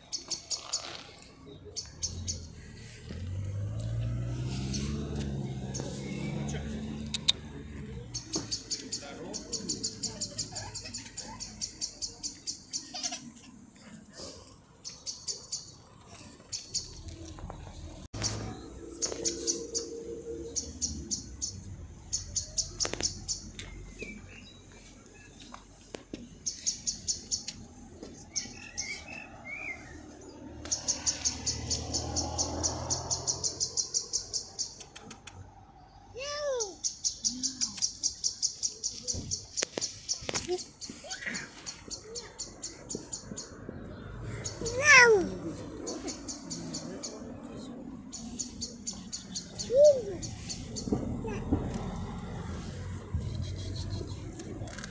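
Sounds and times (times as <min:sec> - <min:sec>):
small birds chirping rapidly: 0:00.0 - 0:13.6, 0:14.7 - 0:17.1, 0:18.2 - 0:51.5.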